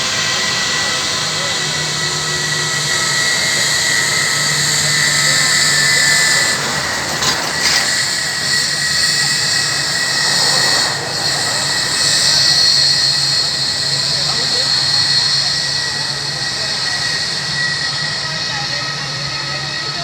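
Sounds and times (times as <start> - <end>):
jet engines running: 0.0 - 20.0
brief rattle: 5.6 - 12.8.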